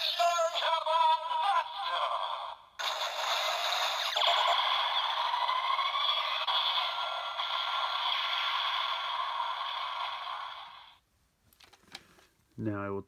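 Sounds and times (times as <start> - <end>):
tinny electronic toy blast: 2.8 - 11.0.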